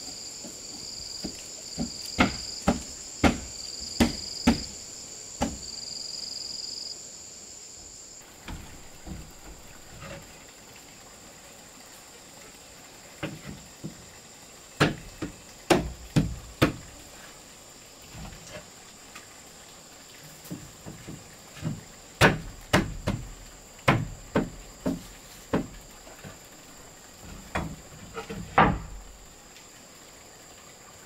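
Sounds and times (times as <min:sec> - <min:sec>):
high insect drone: 0:00.0 - 0:31.0
knocks and thuds on wood: 0:00.4 - 0:04.8, 0:05.4 - 0:05.7, 0:08.4 - 0:10.2, 0:14.8 - 0:16.9, 0:20.4 - 0:26.4, 0:27.2 - 0:29.2.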